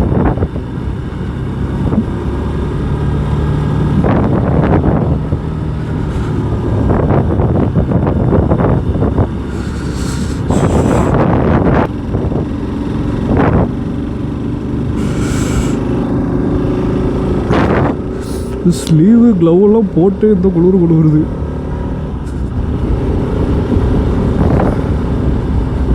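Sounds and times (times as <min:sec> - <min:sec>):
wind buffeting microphone: 0:00.0 - 0:03.0, 0:03.6 - 0:14.1, 0:16.8 - 0:20.0, 0:22.1 - 0:25.9
motorcycle engine running: 0:00.0 - 0:25.9.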